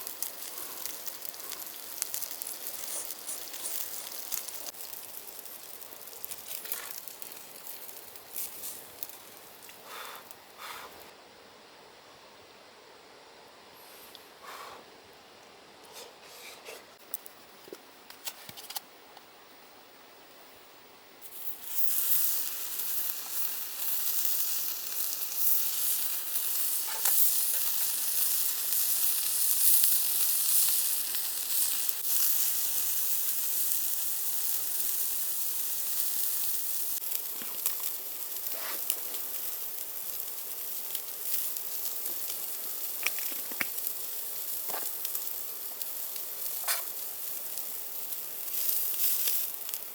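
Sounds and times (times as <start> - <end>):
meat sizzling on a grill: 0.0 - 10.8, 21.2 - 49.9
small pops: 42.0 - 43.9, 46.5 - 47.0.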